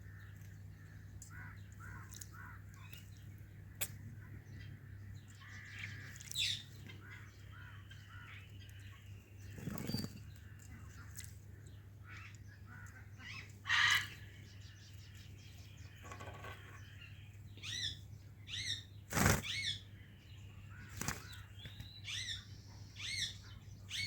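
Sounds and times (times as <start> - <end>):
parrot chirping calls: 13.2 - 14.2.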